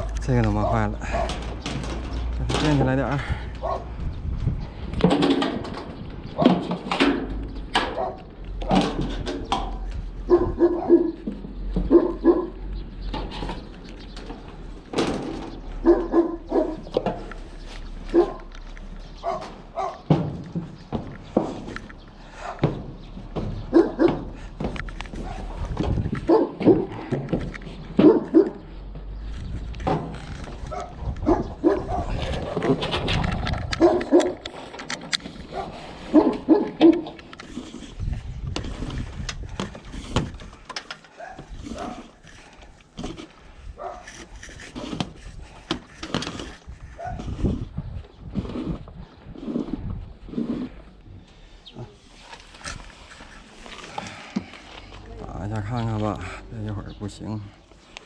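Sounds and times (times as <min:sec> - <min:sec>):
dog barking: 0:00.0 - 0:01.4, 0:03.6 - 0:03.9, 0:07.9 - 0:08.8, 0:10.3 - 0:11.2, 0:11.9 - 0:12.6, 0:15.8 - 0:16.9, 0:18.1 - 0:18.5, 0:19.2 - 0:20.1, 0:22.4 - 0:22.7, 0:23.7 - 0:24.3, 0:26.3 - 0:26.9, 0:28.0 - 0:28.6, 0:30.7 - 0:32.6, 0:33.8 - 0:34.4, 0:35.5 - 0:37.1, 0:41.2 - 0:42.0, 0:43.8 - 0:44.1.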